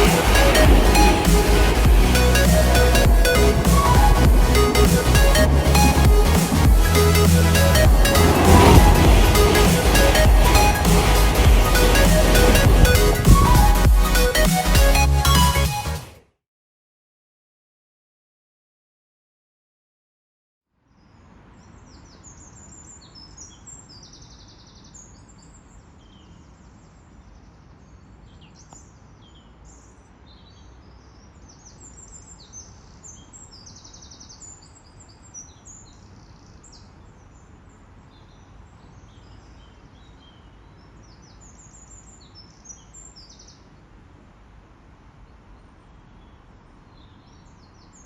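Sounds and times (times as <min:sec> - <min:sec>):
low background rumble: 0:00.0 - 0:15.6
small birds chirping: 0:20.9 - 0:44.1, 0:45.2 - 0:48.0.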